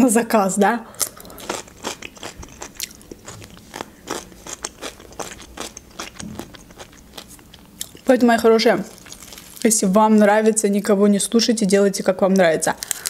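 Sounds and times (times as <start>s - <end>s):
crunchy chewing: 1.0s - 8.2s, 8.8s - 9.8s.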